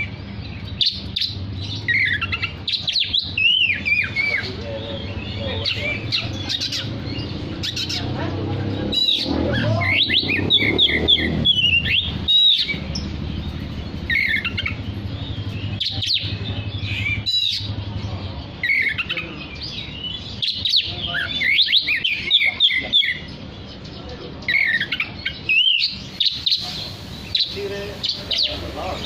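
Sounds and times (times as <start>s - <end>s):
low engine hum: 0.0s - 18.8s
bird singing whistled phrases: 0.8s - 6.9s, 8.9s - 13.1s, 24.5s - 28.6s.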